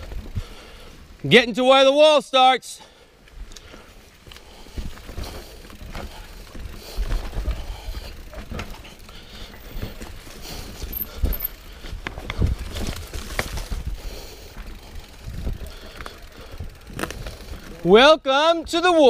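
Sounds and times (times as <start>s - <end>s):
bike knocks and rattles: 4.7s - 17.9s.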